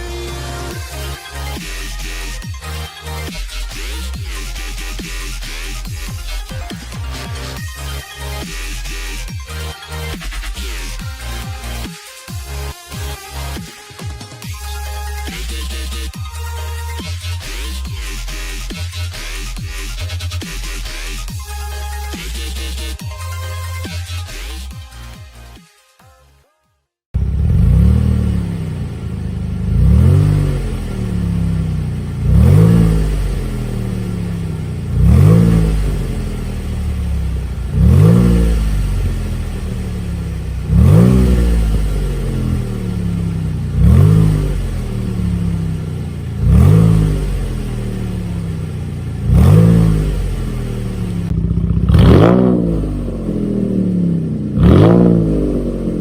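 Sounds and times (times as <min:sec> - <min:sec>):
car engine idling and revving: 0:00.0 - 0:12.0, 0:27.2 - 0:56.0.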